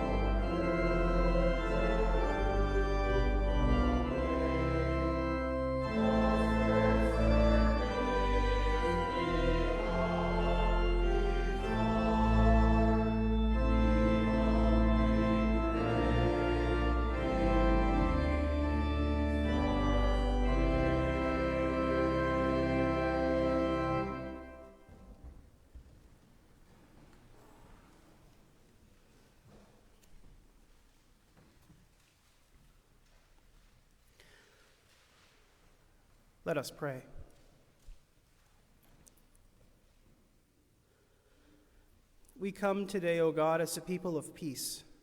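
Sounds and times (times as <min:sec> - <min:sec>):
church organ chords: 0:00.0 - 0:25.1.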